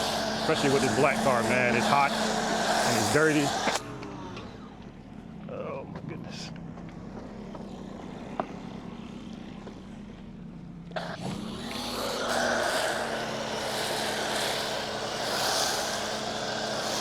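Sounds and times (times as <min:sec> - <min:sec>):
pressure washer motor humming: 0:00.0 - 0:04.7, 0:10.9 - 0:17.0.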